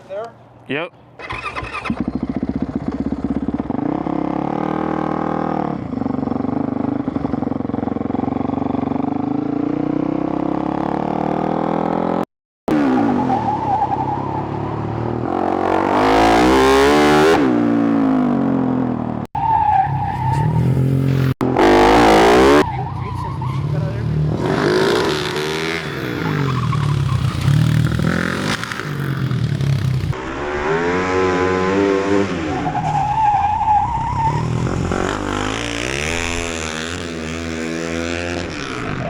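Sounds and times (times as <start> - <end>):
motorcycle engine revving: 1.2 - 39.0.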